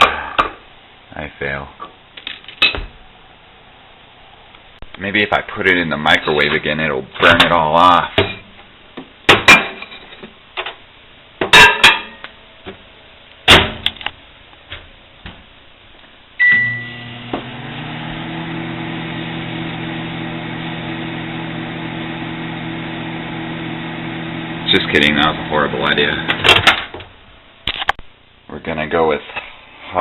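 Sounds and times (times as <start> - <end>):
short beep: 16.4 - 17.0
microwave humming: 16.4 - 27.7.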